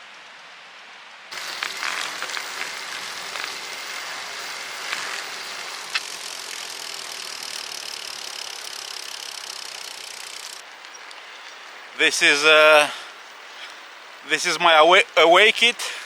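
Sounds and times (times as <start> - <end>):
quiet hiss: 0.0 - 16.0
faint high whine: 1.3 - 15.8
drivetrain clicks: 1.4 - 11.6.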